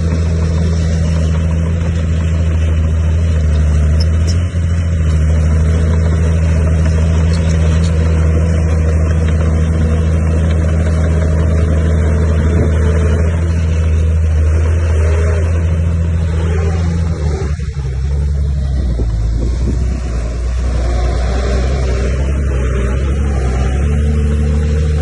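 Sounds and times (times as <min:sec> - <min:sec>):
diesel machine engine droning: 0:00.0 - 0:25.0.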